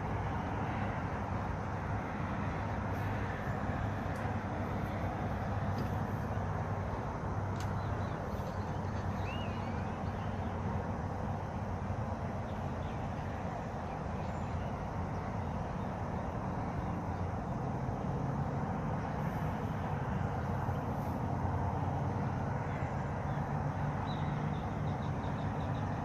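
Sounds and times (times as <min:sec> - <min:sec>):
faint bird chirps: 0:07.7 - 0:10.6.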